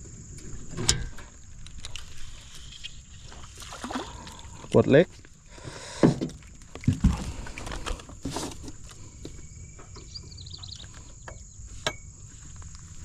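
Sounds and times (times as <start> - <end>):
high chirps: 9.5 - 12.1.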